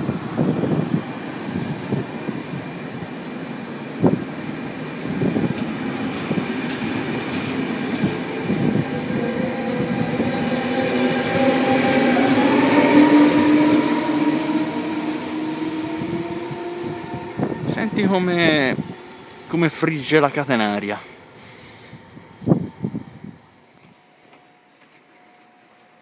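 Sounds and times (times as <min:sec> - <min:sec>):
electric locomotive whine: 0:00.0 - 0:26.0
wheels clicking over rail joints: 0:04.4 - 0:09.0.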